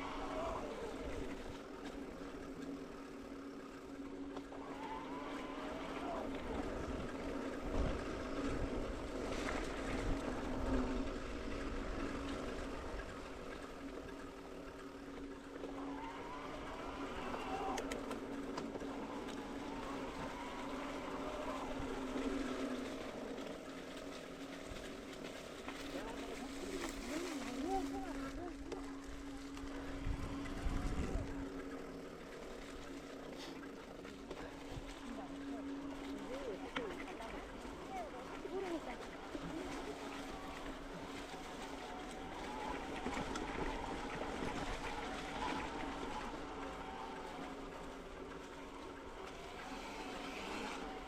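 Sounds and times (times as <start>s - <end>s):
bike tyre and wind noise: 0.0s - 36.7s.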